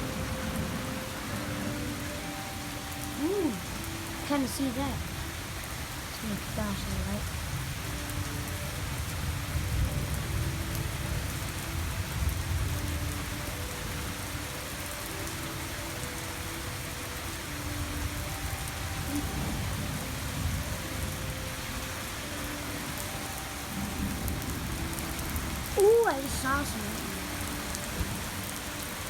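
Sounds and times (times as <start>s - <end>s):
low rumble of thunder: 0.0s - 14.3s, 17.7s - 23.0s
heavy rain pouring: 0.0s - 29.0s.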